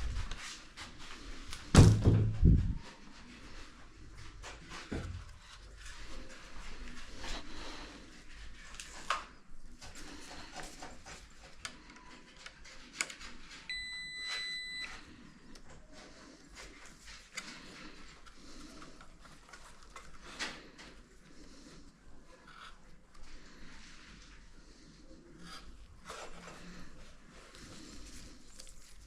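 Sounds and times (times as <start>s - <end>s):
electronic beep: 13.7s - 14.9s.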